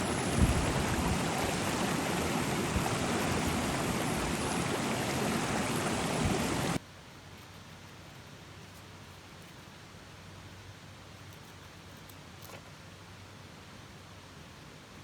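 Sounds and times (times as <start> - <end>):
stream water rushing: 0.0 - 6.8
faint hiss: 0.0 - 15.0.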